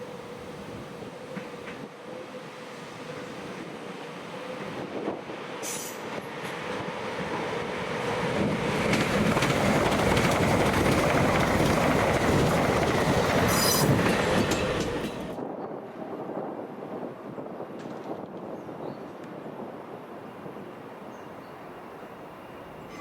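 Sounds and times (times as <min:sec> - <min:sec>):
train passing: 0:00.0 - 0:17.8, 0:19.3 - 0:23.0
wheels clattering over rails: 0:08.4 - 0:15.4
high wheel squeal: 0:13.4 - 0:14.0.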